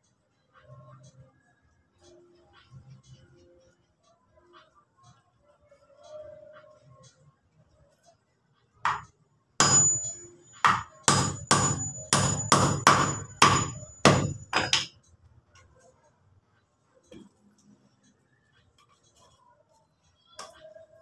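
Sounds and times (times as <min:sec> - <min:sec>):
thin high ring: 0:09.6 - 0:14.5
hammer striking wood: 0:09.6 - 0:14.9.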